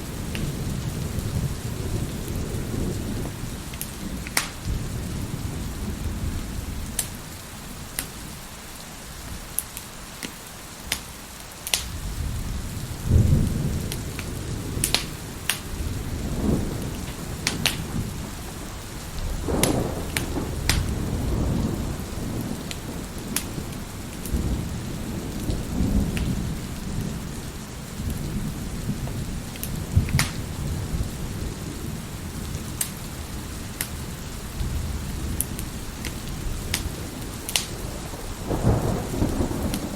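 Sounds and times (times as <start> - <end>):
thunder rumbling: 0.0 - 8.4, 11.8 - 39.9
heavy rain: 0.0 - 39.9
wood fire crackling and popping: 0.2 - 0.5, 2.9 - 5.0, 6.9 - 7.2, 9.5 - 12.0, 13.4 - 24.4, 25.4 - 26.8, 29.0 - 30.6, 32.4 - 33.1, 33.7 - 34.0, 34.6 - 38.0.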